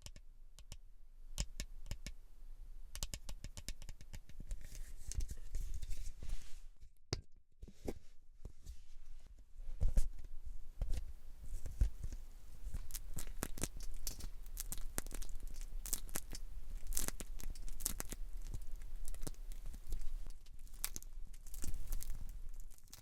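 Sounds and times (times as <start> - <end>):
hair crackling and rustling: 11.5 - 23.0.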